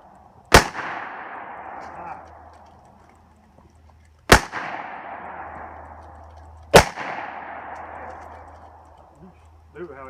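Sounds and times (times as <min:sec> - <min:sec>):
gunshots with rolling echo: 0:00.5 - 0:02.5, 0:04.3 - 0:08.8.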